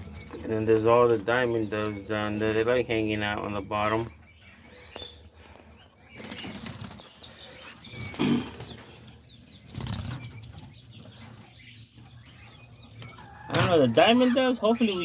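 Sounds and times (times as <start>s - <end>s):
small birds wings flapping: 6.2s - 11.1s.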